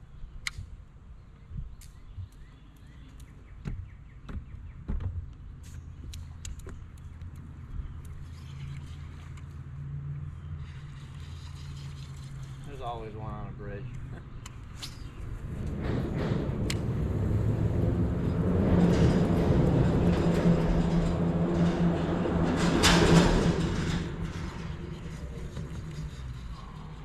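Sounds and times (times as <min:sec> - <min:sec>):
vehicle passing by: 0:15.2 - 0:27.0.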